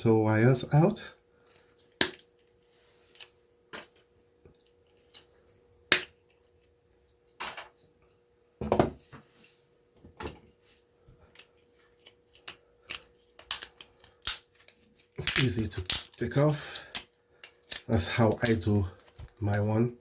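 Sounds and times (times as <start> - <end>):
faint steady hum: 0.0 - 20.0
hand tools snapping wires: 15.2 - 17.1.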